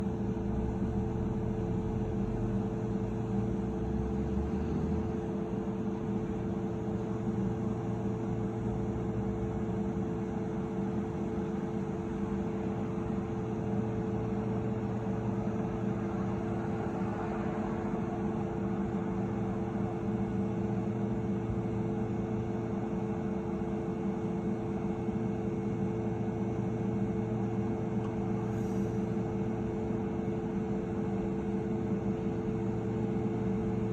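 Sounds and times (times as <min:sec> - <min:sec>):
jet engines droning: 0:12.5 - 0:23.2.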